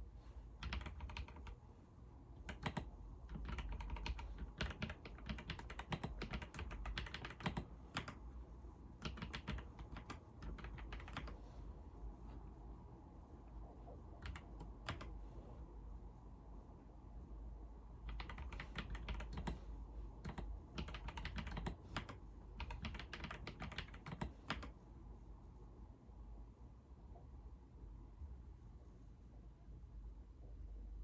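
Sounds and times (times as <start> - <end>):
faint low hum: 0.0 - 31.0
typing on computer keyboard: 0.6 - 1.6, 2.4 - 8.2, 9.0 - 11.4, 14.2 - 15.2, 18.1 - 24.8.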